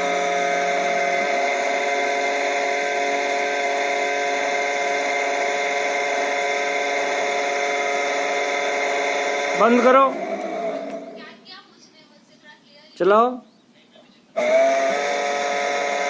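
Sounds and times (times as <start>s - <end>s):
low hum: 0.0s - 11.4s
electric motor and pump whine: 0.0s - 11.5s, 14.4s - 16.0s.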